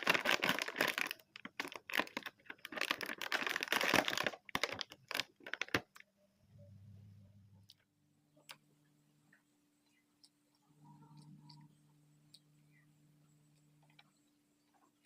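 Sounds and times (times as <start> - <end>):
crackling eating noises: 0.0 - 6.1
faint low hum: 0.0 - 15.0.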